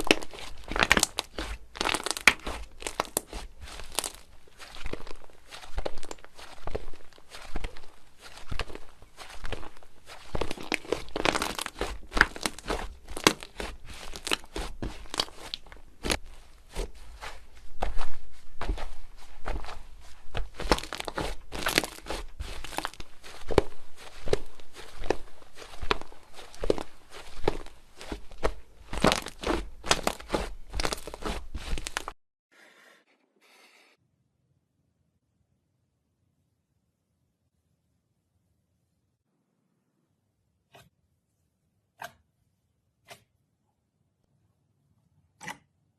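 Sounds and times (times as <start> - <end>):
slime crackling and popping: 0.0 - 32.2.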